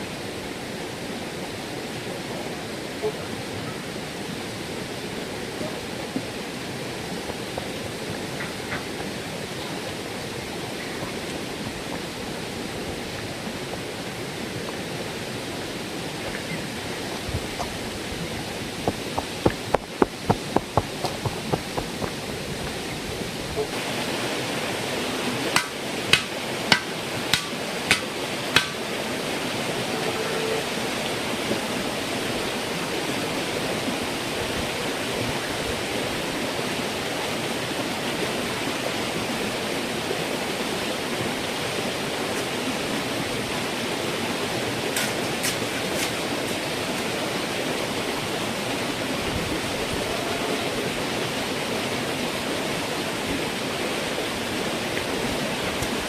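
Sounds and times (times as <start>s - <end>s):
steady rushing noise: 4.0s - 29.6s
sharp knocks: 18.8s - 22.8s, 25.6s - 28.8s.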